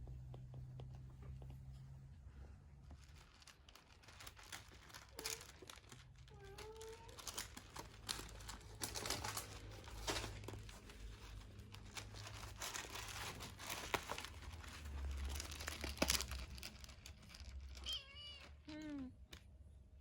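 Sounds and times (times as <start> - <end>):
rustling and crinkling: 0.0 - 19.6
kitten meow: 17.8 - 19.1.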